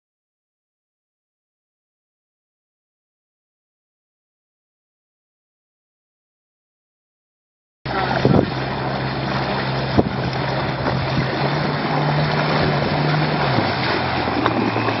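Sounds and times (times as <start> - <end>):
boat engine humming: 7.9 - 15.0
wind noise on microphone: 7.9 - 15.0.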